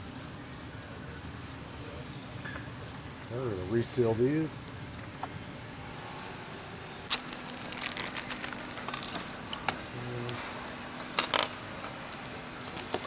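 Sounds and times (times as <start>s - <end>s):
metal tools clinking: 7.1s - 10.4s, 11.0s - 13.0s.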